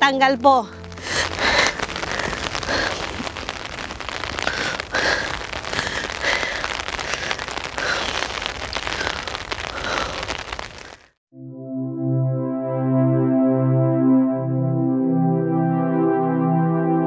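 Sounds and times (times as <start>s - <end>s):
heavy rain falling: 0.0s - 11.2s.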